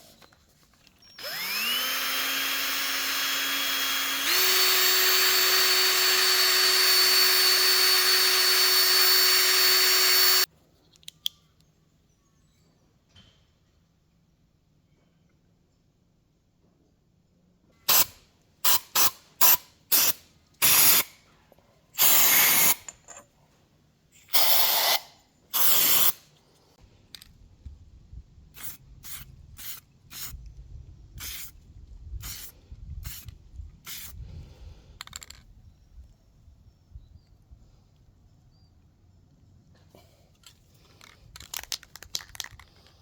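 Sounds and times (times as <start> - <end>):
short bursts of spraying: 28.6 - 30.4, 31.2 - 31.5, 32.2 - 33.3.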